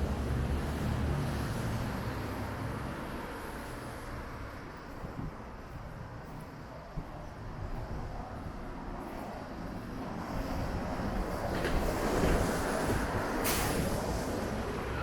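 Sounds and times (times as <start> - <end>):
vehicle passing on wet street: 0.0 - 4.0, 11.6 - 15.0
short sharp hiss: 13.4 - 14.4.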